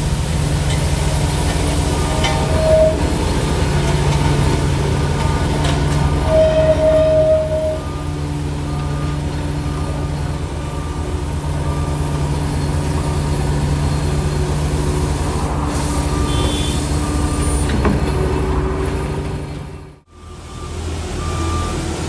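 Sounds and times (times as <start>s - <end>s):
diesel engine under load: 0.0s - 22.0s
reversing alarm beeping: 5.1s - 13.8s, 15.7s - 17.6s, 20.1s - 22.0s.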